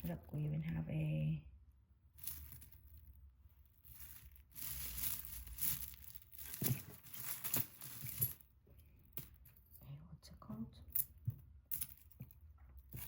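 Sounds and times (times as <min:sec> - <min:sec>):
packaging crinkling and rustling: 0:03.8 - 0:08.5.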